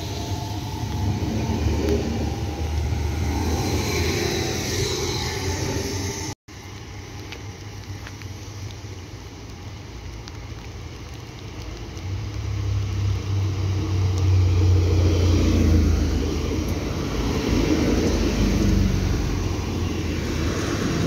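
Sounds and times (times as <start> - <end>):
train wheels rumbling on rails: 0.0 - 6.4, 13.7 - 21.0
diesel engine hum: 11.4 - 21.0.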